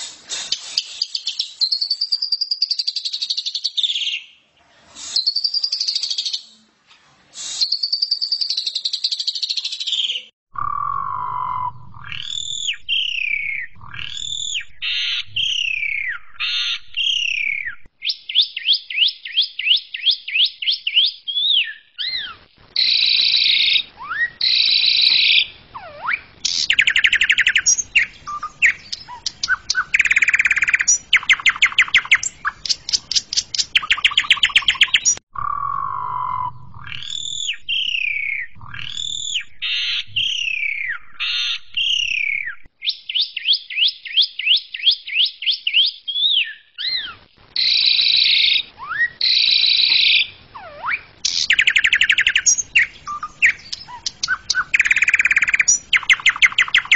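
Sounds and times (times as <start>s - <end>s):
starling singing: 21.6s - 42.7s, 46.8s - 56.9s.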